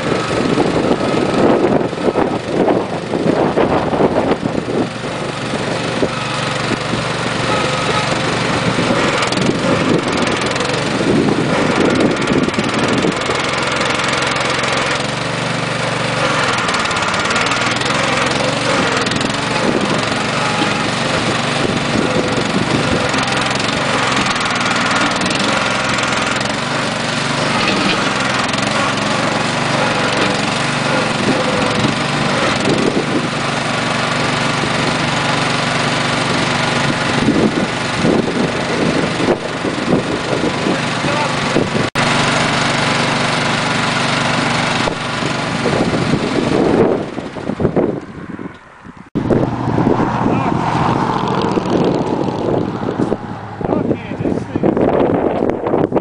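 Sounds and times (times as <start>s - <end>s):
garden tractor engine running: 0.0s - 56.0s.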